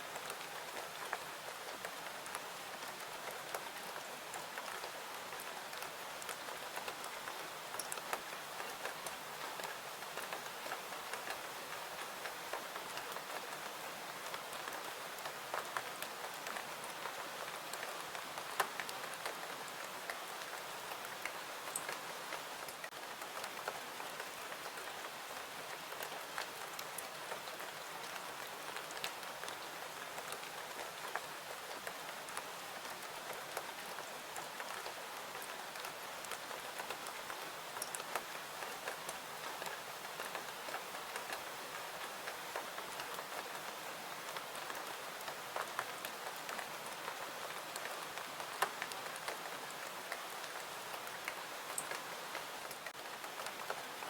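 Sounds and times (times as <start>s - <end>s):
steady rain falling: 0.0s - 54.0s
raindrop ticks and pops: 36.2s - 38.3s.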